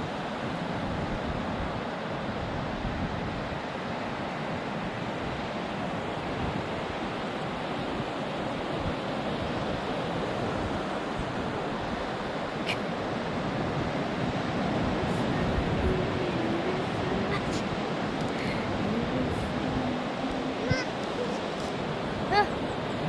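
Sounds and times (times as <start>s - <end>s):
ocean surf breaking on beach: 0.0s - 23.0s
wind on microphone: 4.6s - 23.0s.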